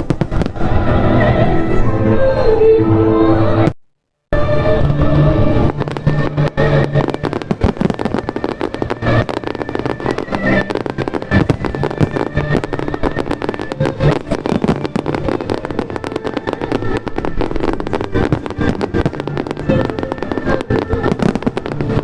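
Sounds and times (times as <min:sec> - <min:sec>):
fireworks crackling and popping: 0:00.0 - 0:01.0, 0:04.4 - 0:22.0
music playing: 0:00.0 - 0:03.7, 0:04.4 - 0:22.0.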